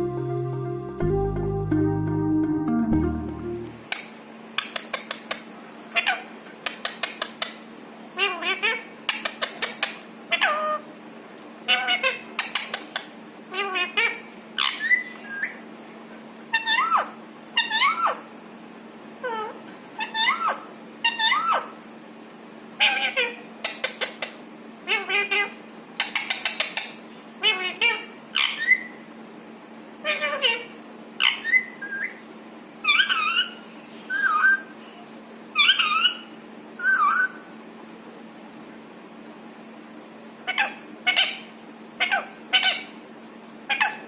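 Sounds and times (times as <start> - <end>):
parrot shrill calls: 5.9 - 6.3, 9.6 - 10.8, 11.7 - 12.8, 13.5 - 15.6, 16.5 - 18.3, 19.2 - 21.8, 22.8 - 24.2, 24.8 - 29.0, 30.0 - 32.2, 32.8 - 34.7, 35.5 - 37.5, 40.4 - 43.0, 43.7 - 44.0
parakeet mimicking speech: 8.2 - 8.9, 11.7 - 12.6, 13.5 - 15.0, 22.8 - 24.1, 24.8 - 26.2, 27.4 - 28.8, 30.0 - 31.6.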